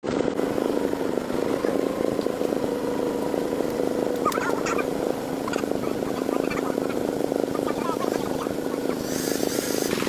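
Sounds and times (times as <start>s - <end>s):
engine rattling: 0.0s - 10.0s.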